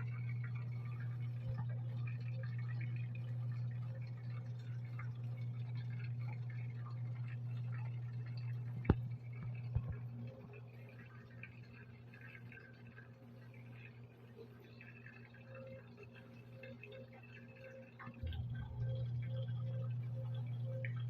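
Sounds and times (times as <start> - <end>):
washing machine humming: 0.0 - 21.0
water trickling into tub: 0.0 - 21.0.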